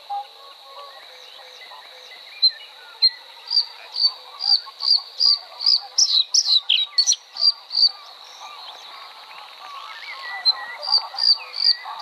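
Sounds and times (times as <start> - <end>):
small bird chirps: 2.4 - 12.0.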